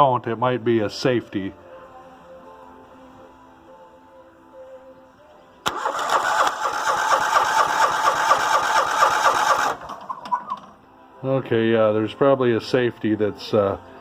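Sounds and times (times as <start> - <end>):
mower engine cranking: 5.7 - 10.7.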